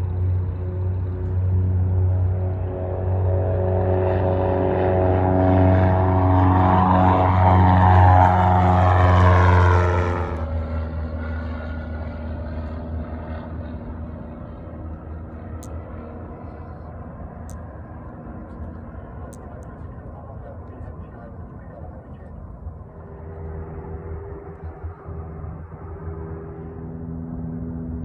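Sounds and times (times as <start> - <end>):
light aircraft engine and propeller drone: 0.0 - 28.0.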